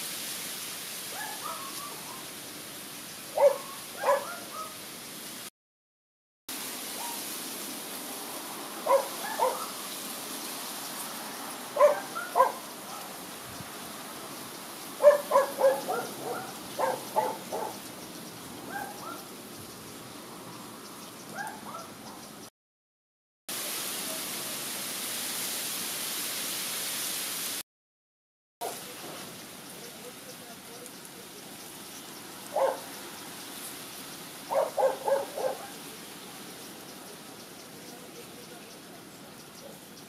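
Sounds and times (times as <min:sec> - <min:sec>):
steady hiss: 0:00.0 - 0:05.5, 0:06.5 - 0:21.3, 0:23.5 - 0:27.6, 0:28.6 - 0:40.0
bird calling: 0:01.2 - 0:02.3, 0:03.4 - 0:04.8, 0:08.9 - 0:09.8, 0:11.8 - 0:13.2, 0:15.0 - 0:19.3, 0:21.2 - 0:22.4, 0:32.5 - 0:33.0, 0:34.4 - 0:35.8.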